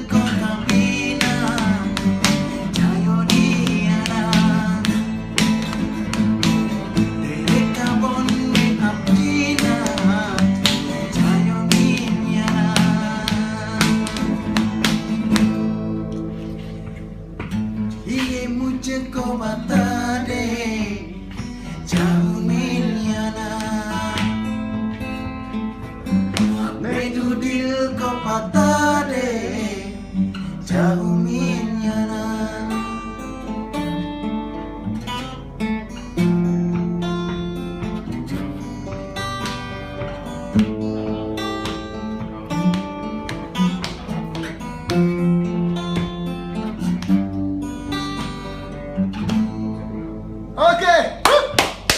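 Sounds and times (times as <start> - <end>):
man singing: 0.0 - 5.6, 6.8 - 15.0, 18.0 - 24.6, 26.4 - 33.3
acoustic guitar strumming: 0.0 - 51.9.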